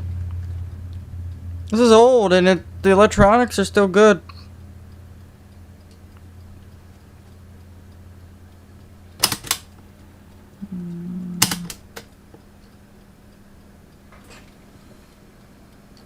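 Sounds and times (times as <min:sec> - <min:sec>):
cassette deck keys clicking: 0:09.2 - 0:09.7.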